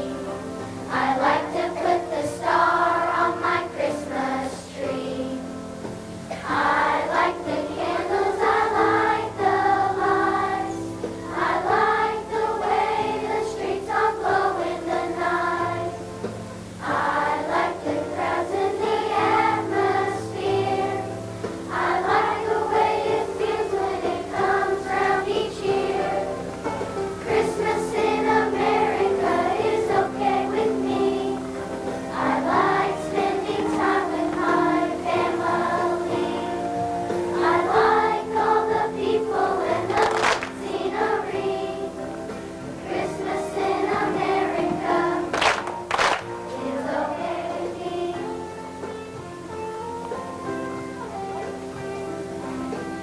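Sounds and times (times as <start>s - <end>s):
children's choir singing: 0.0s - 49.2s
instrumental accompaniment: 5.4s - 53.0s.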